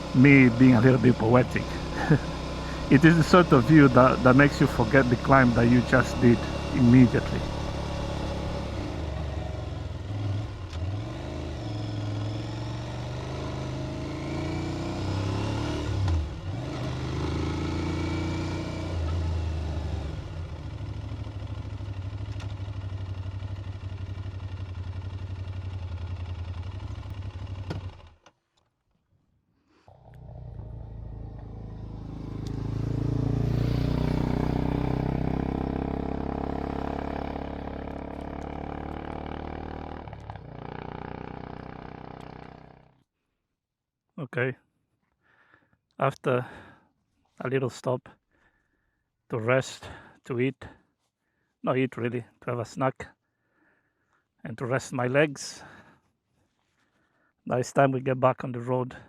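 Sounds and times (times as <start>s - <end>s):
motorcycle engine revving: 0.0s - 28.3s, 29.9s - 43.0s.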